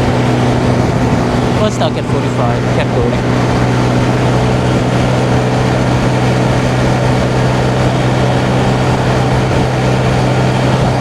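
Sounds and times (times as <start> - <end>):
scooter engine at high revs: 0.0 - 11.0
wind and road noise: 0.0 - 11.0.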